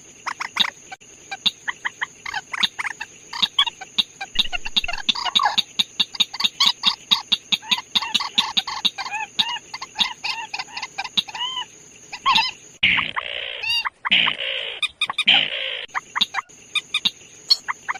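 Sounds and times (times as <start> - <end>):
bird clucking call: 0.2 - 16.5.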